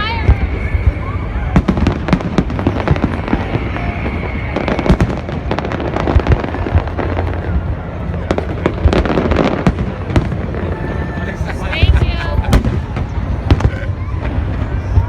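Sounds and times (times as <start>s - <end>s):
continuous low rumble: 0.0s - 15.0s
fireworks bangs and crackles: 0.0s - 15.0s.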